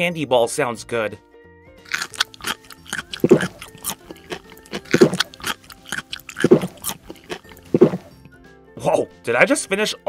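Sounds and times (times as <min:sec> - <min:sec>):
crackly candy crunches: 0:01.9 - 0:07.6
loud chewing munches: 0:01.9 - 0:08.2.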